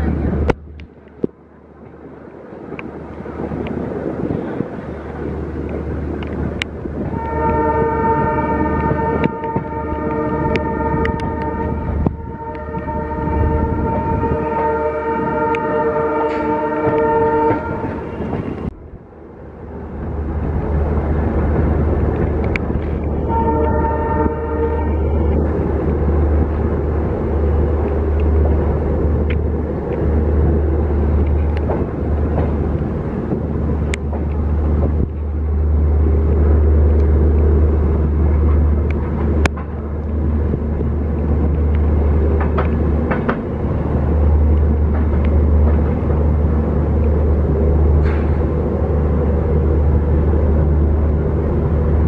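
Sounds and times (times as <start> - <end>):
train wheels rumbling: 0.0 - 52.0
wheels clanking on rail joints: 19.8 - 52.0.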